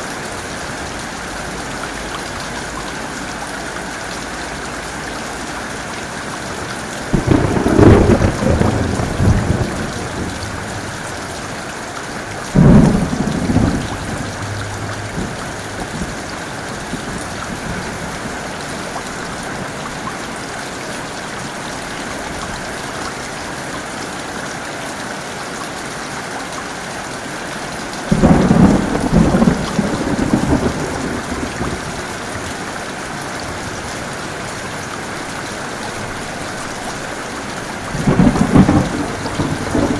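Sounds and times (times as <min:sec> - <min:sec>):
heavy rain falling: 0:00.0 - 0:39.9
thunder rumbling and cracking: 0:07.1 - 0:19.8, 0:28.1 - 0:32.7, 0:37.6 - 0:39.9.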